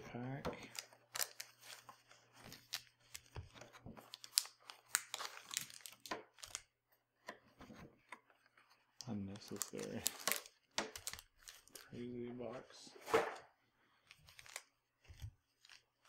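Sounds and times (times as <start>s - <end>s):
foil wrapper tearing and crinkling: 4.0s - 6.7s, 9.3s - 11.9s, 14.3s - 14.7s.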